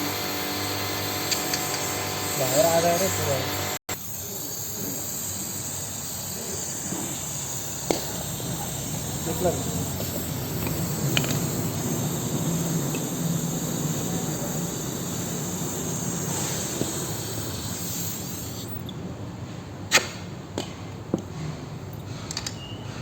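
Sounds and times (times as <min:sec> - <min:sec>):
gas torch flame hissing: 0:00.0 - 0:19.0.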